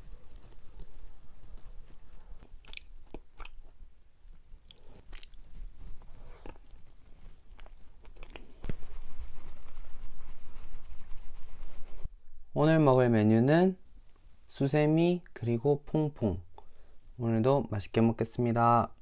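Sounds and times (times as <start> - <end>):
biting and chewing rice cake: 0.0 - 3.8, 4.4 - 8.7
sticky mouth clicks and smacks: 1.8 - 3.8, 4.6 - 5.6.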